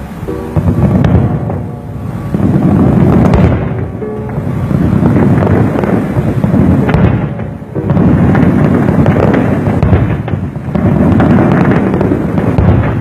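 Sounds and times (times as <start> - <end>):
distant fireworks booms and crackling: 0.0 - 13.0.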